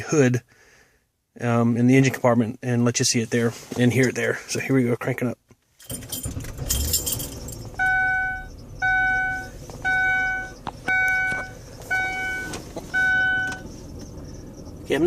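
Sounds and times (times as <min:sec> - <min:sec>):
car engine starting and idling: 0:05.8 - 0:15.0
dashboard warning chime: 0:05.9 - 0:14.5.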